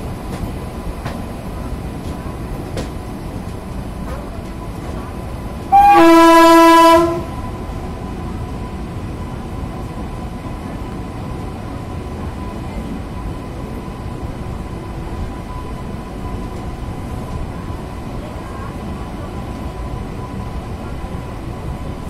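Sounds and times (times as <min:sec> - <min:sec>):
train rumbling on rails: 0:00.0 - 0:22.0
train horn blast: 0:05.7 - 0:07.4.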